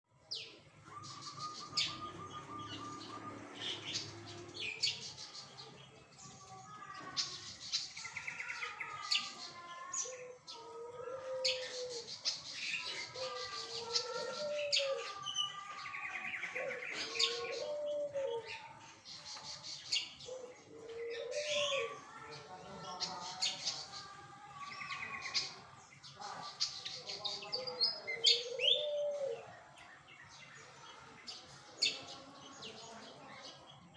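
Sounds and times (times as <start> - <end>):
bird singing trills and chirps: 0.2 - 33.9
bird whistled gliding phrases: 0.8 - 3.9.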